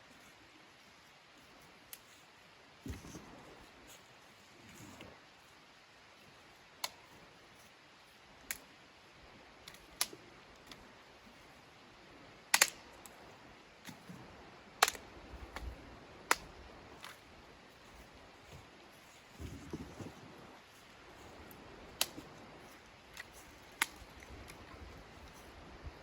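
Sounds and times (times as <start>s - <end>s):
sharp clicks and snaps: 12.5s - 13.2s, 14.8s - 15.7s, 16.3s - 17.2s, 21.9s - 25.4s.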